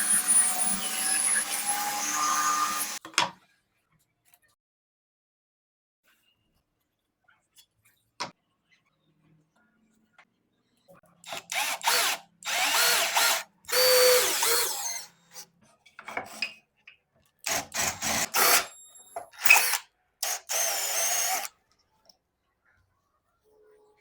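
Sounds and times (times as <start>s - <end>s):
power drill bursts: 0.0s - 3.0s, 11.3s - 15.1s, 17.5s - 21.5s.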